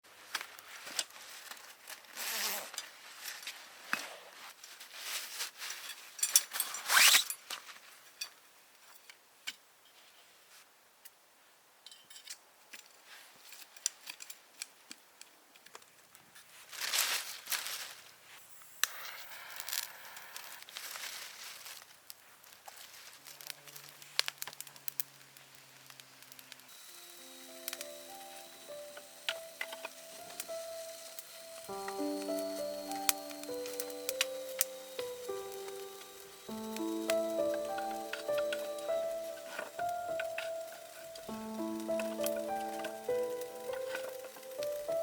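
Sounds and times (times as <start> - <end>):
rustling and tearing: 0.4 - 7.9, 16.4 - 18.2, 20.6 - 24.9
sharp clicks and crackles: 25.8 - 45.0.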